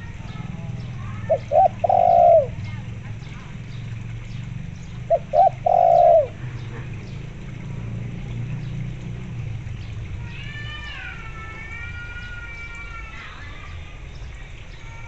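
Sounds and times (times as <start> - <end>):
dove cooing: 0.0 - 3.8, 4.9 - 7.2.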